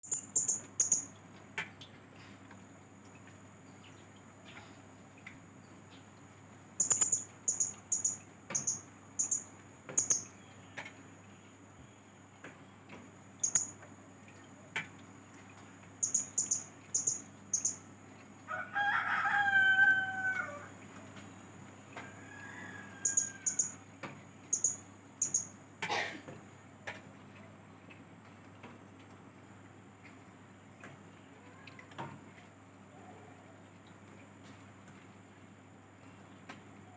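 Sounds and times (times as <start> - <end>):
parrot high-pitched chirps: 0.1 - 1.1, 6.8 - 10.3, 13.4 - 13.8, 16.0 - 17.8, 23.0 - 23.8, 24.5 - 25.5.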